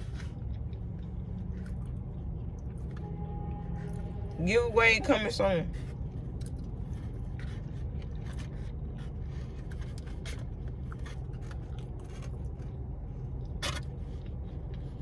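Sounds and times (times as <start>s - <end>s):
quiet eating sounds: 0.0s - 4.2s, 5.7s - 15.0s
steady low hum: 0.0s - 15.0s
clicks and scrapes of packaging: 6.4s - 12.8s, 13.4s - 15.0s.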